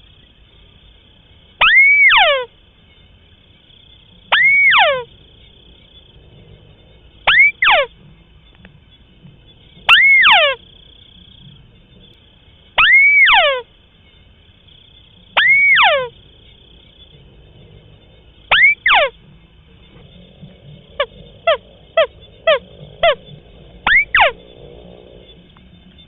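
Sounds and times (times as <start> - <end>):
crake calling: 1.5 - 3.2, 3.8 - 26.0.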